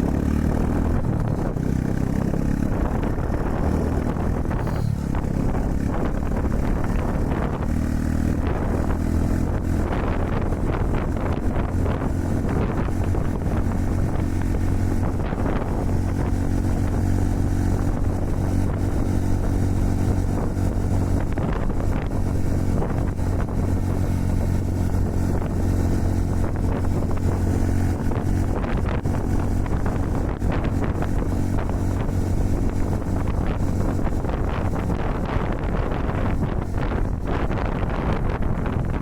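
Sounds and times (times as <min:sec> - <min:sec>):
motorcycle engine running: 0:00.0 - 0:39.0
wind buffeting microphone: 0:00.0 - 0:39.0.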